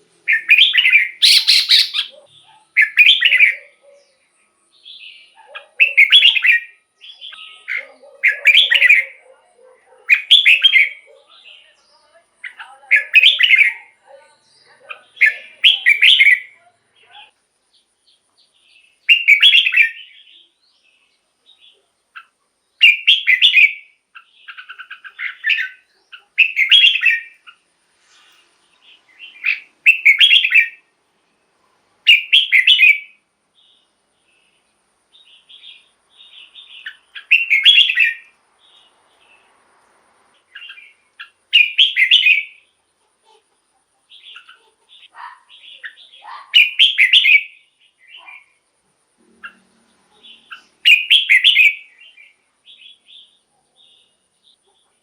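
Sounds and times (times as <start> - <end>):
soft bird chattering: 0.0 - 4.2, 5.0 - 17.4, 21.6 - 30.9, 35.4 - 39.4, 40.4 - 48.6, 49.2 - 55.0
bird song phrases: 0.0 - 55.0.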